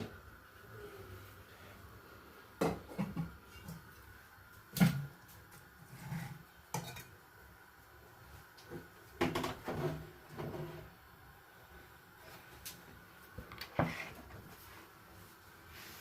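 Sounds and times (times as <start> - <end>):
objects knocking and clunking: 2.6 - 3.9, 8.7 - 10.9.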